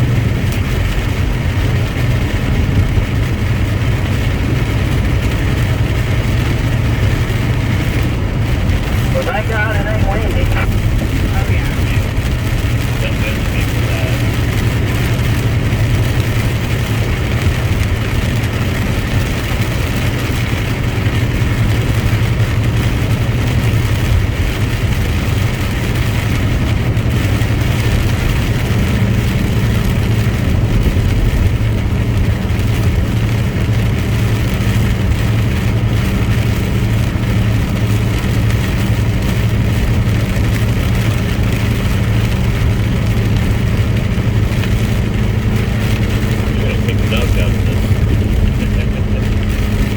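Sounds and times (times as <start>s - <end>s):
road noise: 0.0s - 49.9s
truck engine running: 0.0s - 49.9s.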